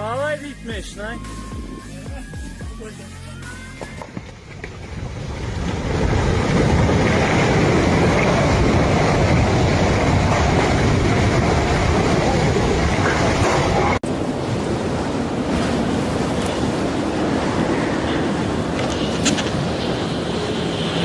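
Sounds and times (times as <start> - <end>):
avalanche rumbling: 4.2 - 21.0.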